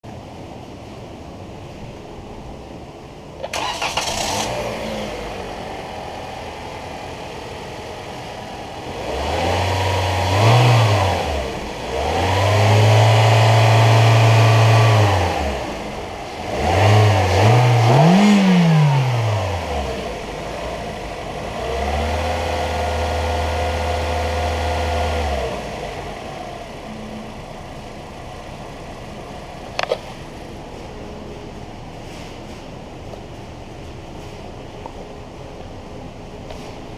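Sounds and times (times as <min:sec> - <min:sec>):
car engine starting and revving: 0:03.4 - 0:30.3.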